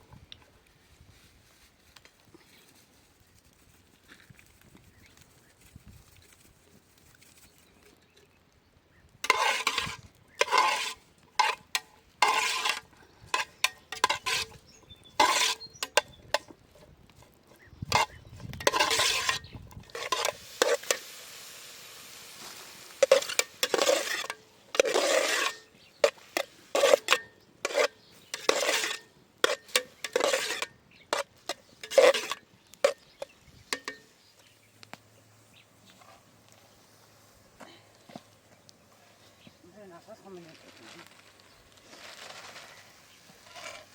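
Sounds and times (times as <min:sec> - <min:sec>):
utensil scraping metal pot: 0:09.2 - 0:34.1, 0:41.9 - 0:43.9.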